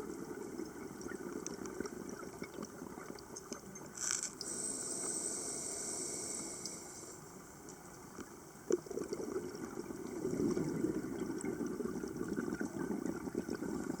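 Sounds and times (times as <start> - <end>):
rough crackly noise: 0.0 - 4.4
water: 0.0 - 14.0.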